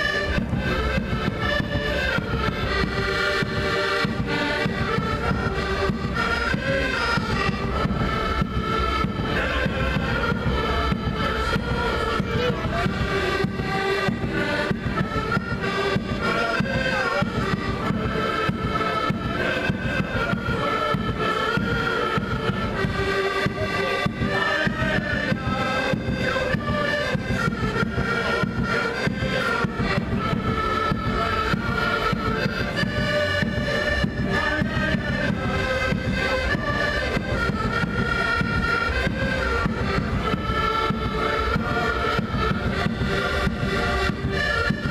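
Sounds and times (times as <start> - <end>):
wind instrument melody: 0.0 - 44.9.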